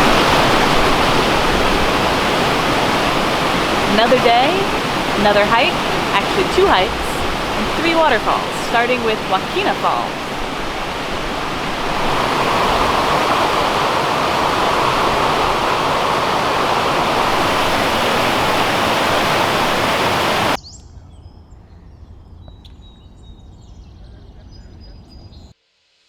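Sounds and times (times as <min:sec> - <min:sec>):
waterfall rushing: 0:00.0 - 0:20.6.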